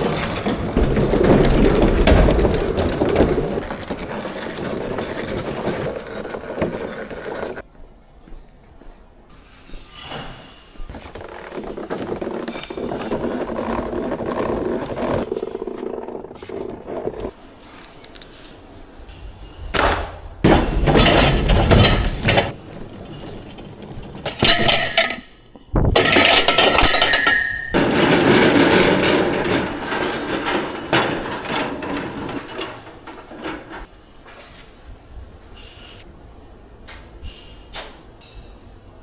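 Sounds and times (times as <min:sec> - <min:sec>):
equipment clattering and clinking: 0:00.0 - 0:07.6, 0:10.9 - 0:17.3, 0:20.5 - 0:33.9.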